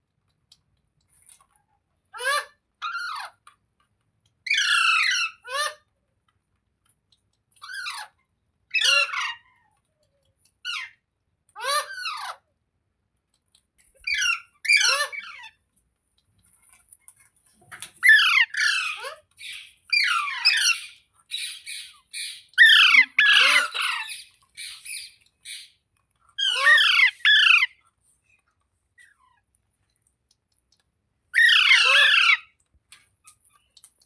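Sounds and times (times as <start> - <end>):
parrot squawking: 8.7 - 9.4, 14.1 - 15.5, 18.0 - 25.8, 26.4 - 27.8, 31.4 - 32.6.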